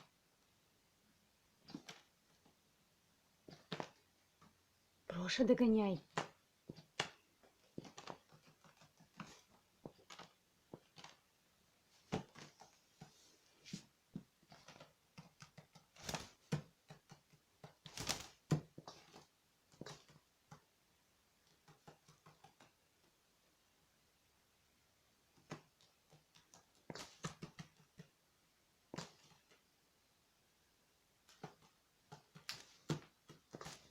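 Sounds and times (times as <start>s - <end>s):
bird beak and claws tapping: 6.1s - 11.2s, 14.2s - 20.7s, 21.4s - 23.1s, 25.3s - 28.2s, 31.2s - 33.9s.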